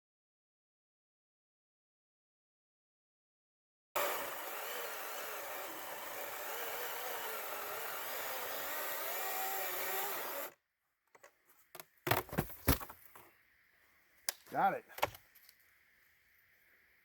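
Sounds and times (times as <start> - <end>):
electric chainsaw cutting log: 4.0 - 10.6.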